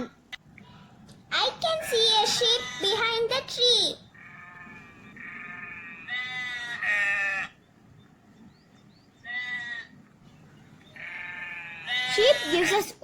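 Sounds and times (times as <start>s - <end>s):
sheep bleating: 4.2s - 7.6s, 9.2s - 9.9s, 11.0s - 12.8s.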